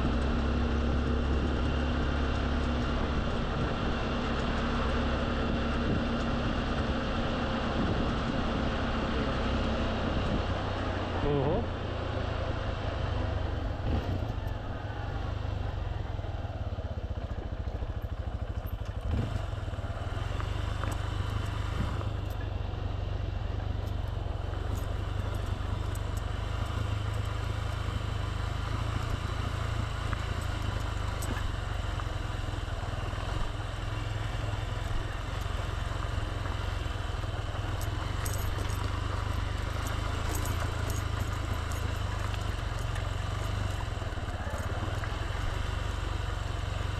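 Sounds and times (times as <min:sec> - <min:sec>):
wind rumble on microphone: 0:00.0 - 0:11.1
motorbike engine running: 0:00.0 - 0:46.9.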